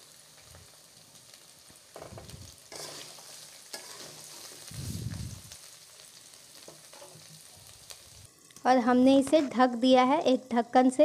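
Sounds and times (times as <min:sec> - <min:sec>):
vegetables frying in oil: 0:00.0 - 0:11.0
spatula scraping pan: 0:02.7 - 0:04.7.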